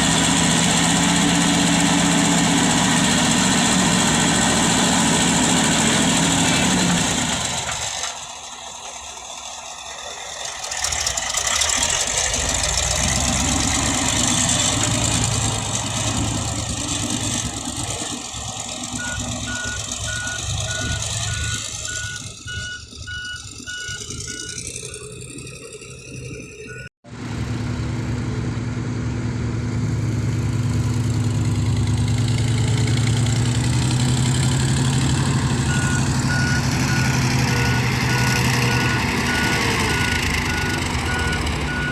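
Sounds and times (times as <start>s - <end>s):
diesel truck engine running: 0.0s - 41.9s
reversing alarm beeping: 19.0s - 26.9s, 35.5s - 41.9s.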